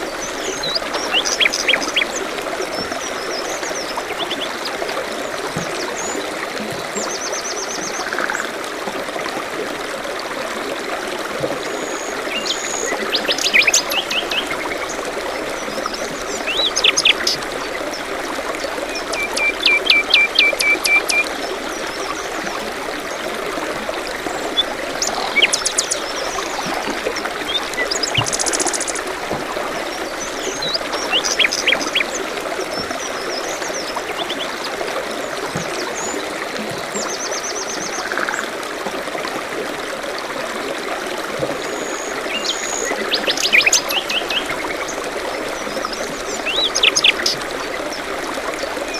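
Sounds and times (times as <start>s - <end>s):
forest stream trickling: 0.0s - 48.9s
songbirds chirping: 11.8s - 36.4s.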